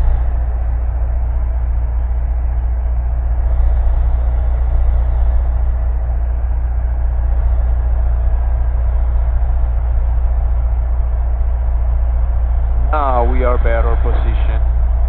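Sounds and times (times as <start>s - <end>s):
airplane engine droning: 0.0s - 15.0s.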